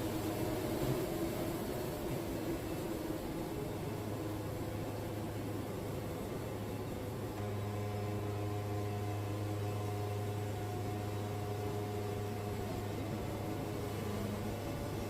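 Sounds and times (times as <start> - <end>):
band sawmill humming: 0.0 - 15.0.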